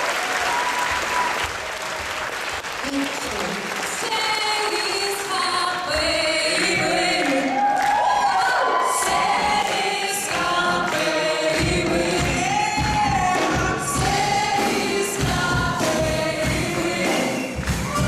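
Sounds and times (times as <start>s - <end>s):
group singing in chorus: 4.0s - 18.0s
bass and beat: 17.6s - 18.0s.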